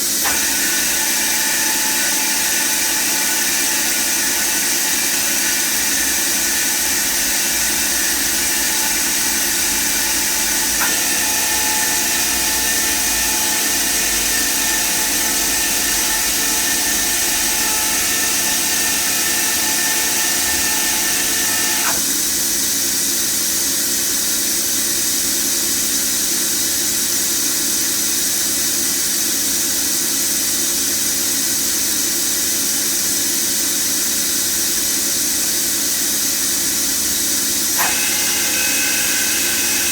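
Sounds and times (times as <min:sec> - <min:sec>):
machine whine: 0:00.0 - 0:22.2, 0:36.9 - 0:39.9
machining center mechanical noise: 0:00.0 - 0:23.5, 0:35.6 - 0:39.9.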